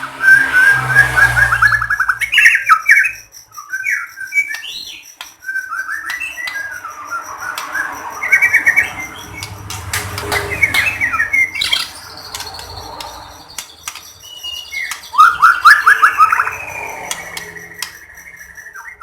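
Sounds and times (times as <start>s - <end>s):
songbird singing: 0.0s - 19.0s
long high whistle: 0.1s - 2.0s
bird sharp clicks: 4.4s - 5.4s, 9.4s - 15.7s, 16.3s - 18.4s.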